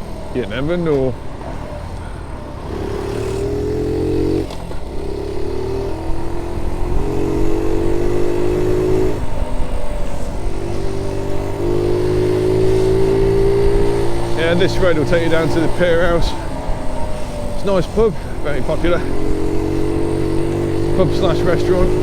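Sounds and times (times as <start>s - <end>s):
small motorcycle engine running: 0.0s - 22.0s.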